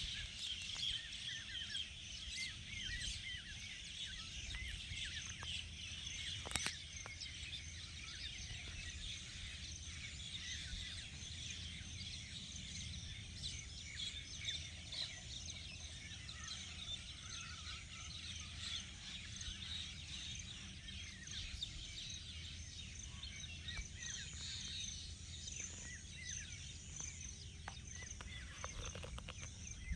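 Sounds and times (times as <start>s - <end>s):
birds chirping: 0.0s - 29.9s.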